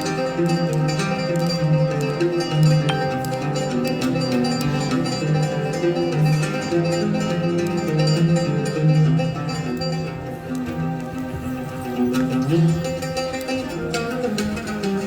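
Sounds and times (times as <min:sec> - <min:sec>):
oud melody: 0:02.9 - 0:06.3.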